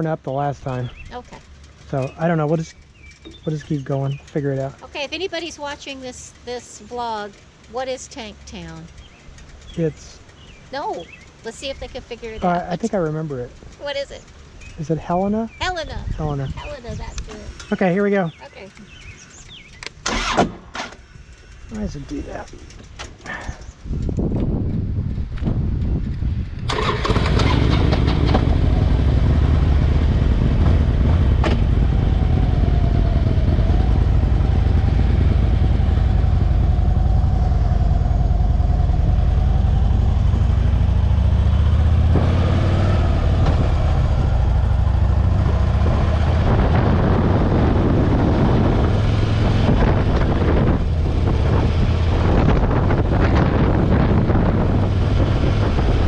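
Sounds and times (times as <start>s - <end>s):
motorcycle engine running: 0.0s - 56.0s
wind rushing over microphone: 14.7s - 17.7s, 23.3s - 56.0s.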